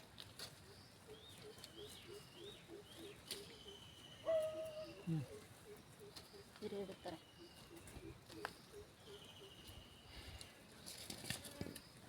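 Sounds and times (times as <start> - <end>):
high bird trill: 1.2 - 6.5.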